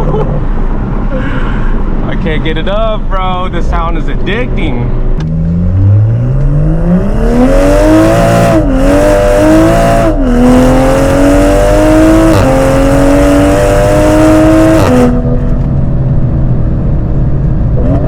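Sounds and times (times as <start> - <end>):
car engine accelerating through gears: 4.8 - 18.0.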